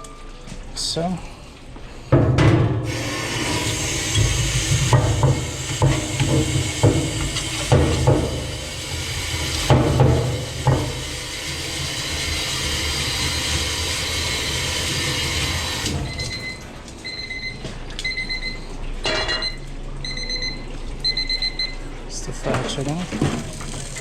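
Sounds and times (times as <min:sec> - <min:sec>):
loud kitchen hiss: 0:02.1 - 0:16.0
kitchen timer beeping: 0:16.1 - 0:18.6, 0:19.3 - 0:21.8.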